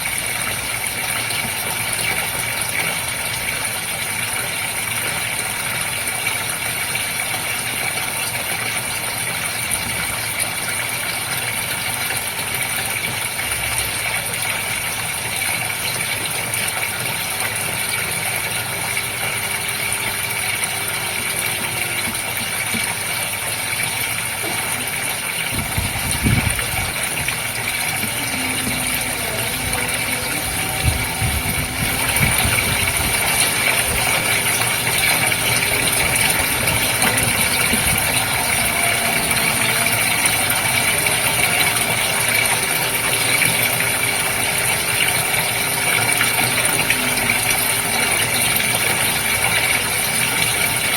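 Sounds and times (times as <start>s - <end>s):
aquarium water running: 0.0s - 50.9s
pump humming: 0.0s - 50.9s
low thumps: 25.5s - 34.2s.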